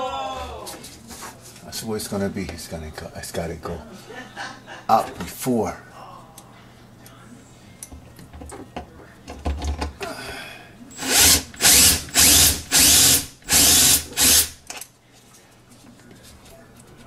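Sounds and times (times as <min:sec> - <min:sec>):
power drill driving a screw: 0:10.9 - 0:14.6.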